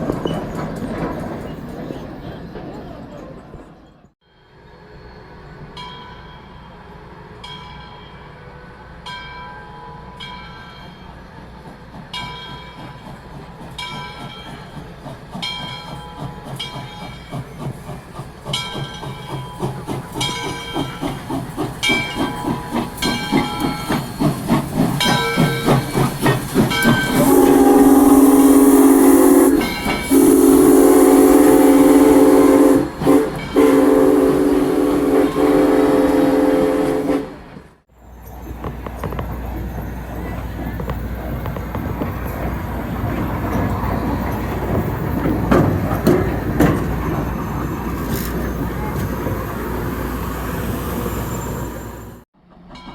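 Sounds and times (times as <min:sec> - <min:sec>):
locomotive bell ringing: 0:05.6 - 0:35.3
steam locomotive exhaust beats: 0:10.2 - 0:52.9
steam whistle blasts: 0:27.1 - 0:37.6.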